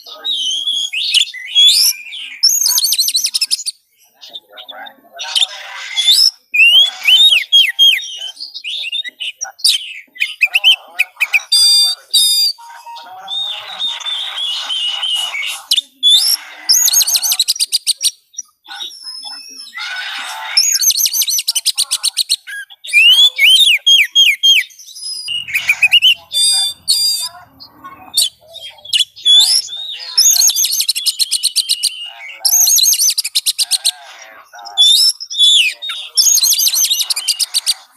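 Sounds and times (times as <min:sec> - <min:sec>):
songbird singing varied song: 0:20.6 - 0:37.9.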